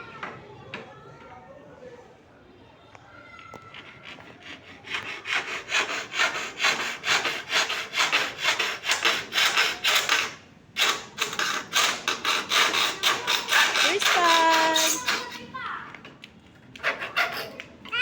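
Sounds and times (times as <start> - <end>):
handsaw cutting wood: 3.7 - 15.5, 16.8 - 17.7.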